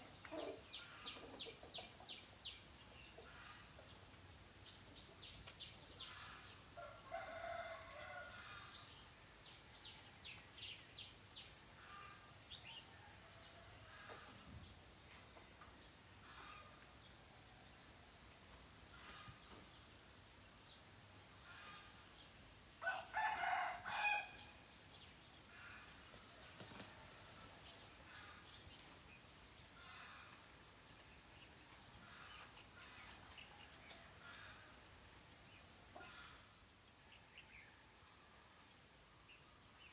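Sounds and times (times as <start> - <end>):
insects trilling: 0.0 - 12.8
faint rooster crowing: 6.2 - 8.9, 22.8 - 24.7.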